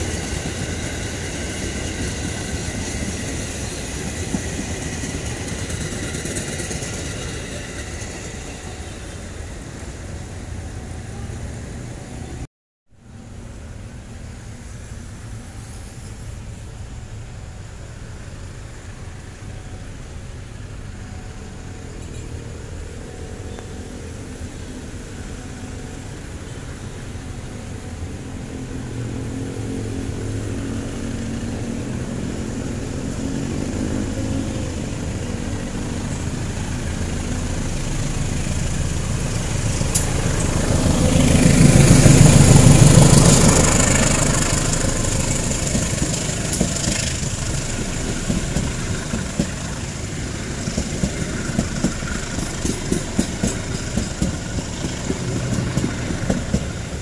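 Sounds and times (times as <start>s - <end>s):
train wheels clicking over rail joints: 0.0s - 9.9s, 29.3s - 57.0s
diesel locomotive engine passing: 0.0s - 57.0s.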